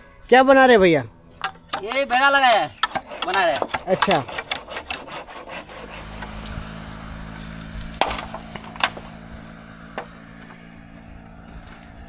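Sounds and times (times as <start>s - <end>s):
engine humming: 0.0s - 12.0s
bamboo chopping strikes: 1.4s - 6.5s, 7.8s - 9.2s.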